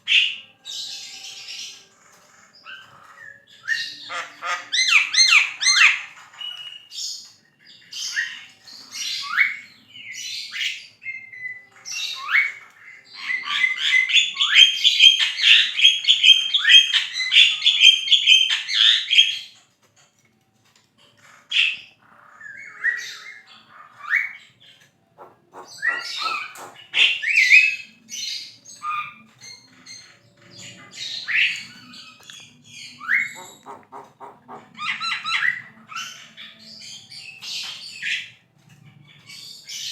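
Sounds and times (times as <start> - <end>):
bird rapid clicking: 25.2 - 27.0, 33.4 - 34.7
bird whistling and squawking: 25.2 - 28.0, 30.8 - 36.6.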